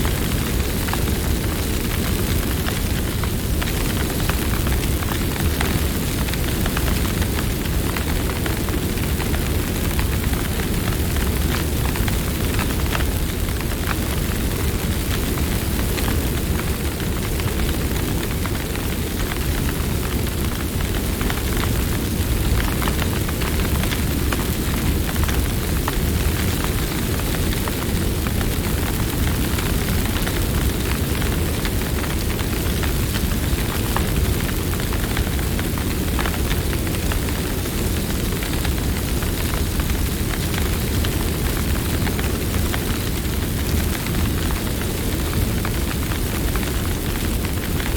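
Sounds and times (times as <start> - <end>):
campfire burning: 0.0 - 47.9
wood crackling and popping: 0.1 - 47.9.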